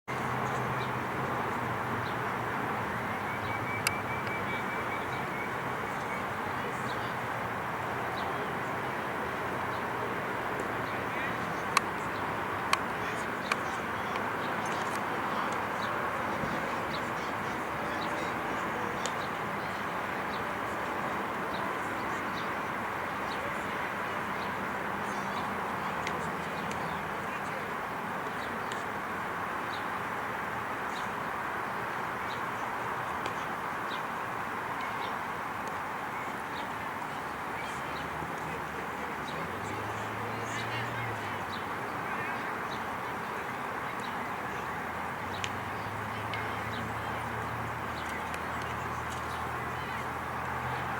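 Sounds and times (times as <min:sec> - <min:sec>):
outdoor background noise: 0:00.0 - 0:50.9.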